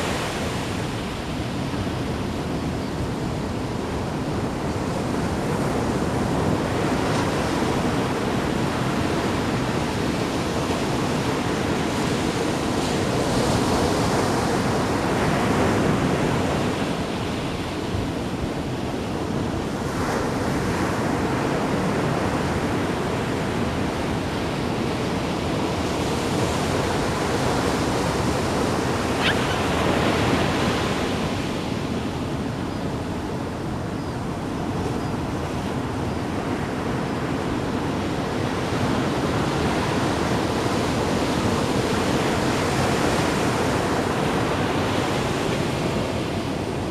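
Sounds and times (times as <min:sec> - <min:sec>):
sea waves splashing: 0:26.6 - 0:32.0.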